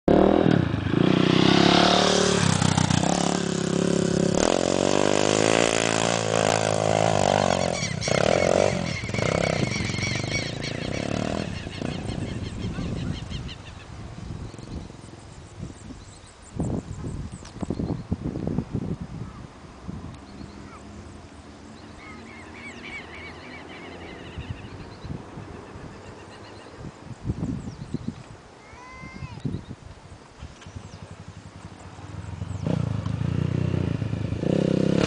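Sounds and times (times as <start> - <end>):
dirt bike engine revving: 0.1 - 13.2, 30.8 - 35.0.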